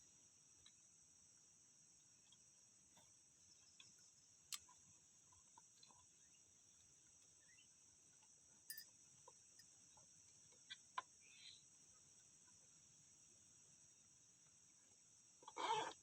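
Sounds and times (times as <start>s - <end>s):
high-pitched insect chorus: 0.0s - 16.0s
faint ticks: 0.5s - 0.9s, 2.0s - 12.7s.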